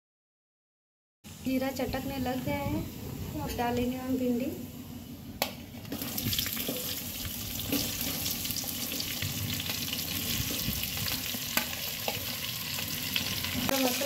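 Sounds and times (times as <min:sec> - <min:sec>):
food sizzling in hot oil: 0:05.7 - 0:14.0.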